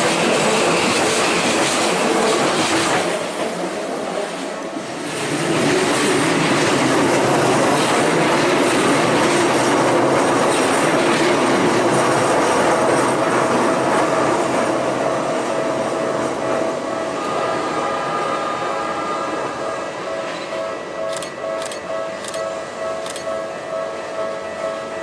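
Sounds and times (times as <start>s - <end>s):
train wheels rumbling and rattling: 0.0s - 18.2s.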